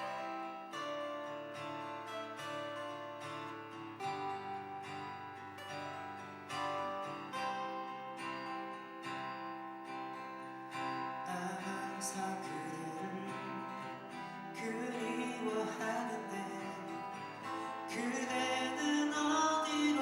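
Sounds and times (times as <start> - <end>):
acoustic guitar strumming chords: 0.0 - 20.0
person singing: 11.2 - 20.0.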